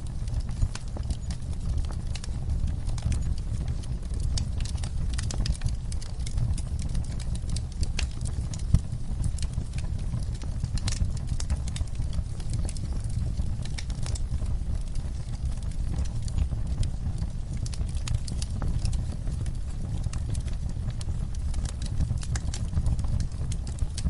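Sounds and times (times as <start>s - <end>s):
wood fire crackling and popping: 0.0s - 24.0s.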